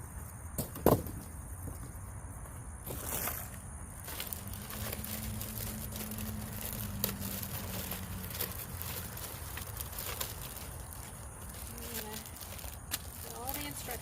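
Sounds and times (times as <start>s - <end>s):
packaging crinkling and clicking: 4.1s - 13.9s.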